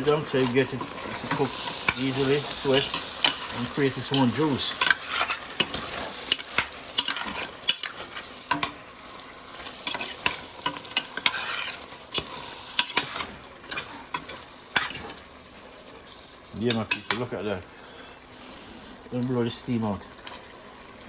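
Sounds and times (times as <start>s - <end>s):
spoon scraping and knocking pot: 0.0s - 8.8s, 9.6s - 15.2s
food sizzling in a pot: 0.0s - 21.0s.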